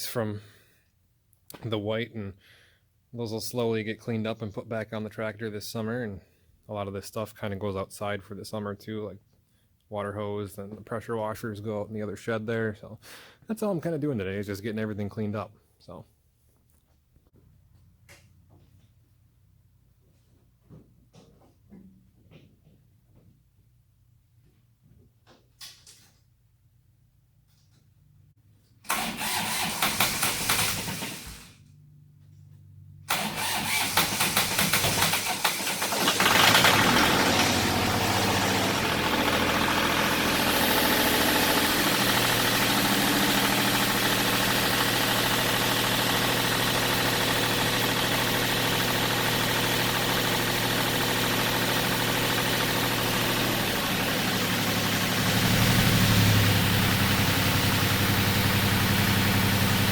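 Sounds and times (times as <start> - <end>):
starter motor cranking: 28.9 - 31.6, 33.1 - 59.9
engine idling: 33.1 - 59.9.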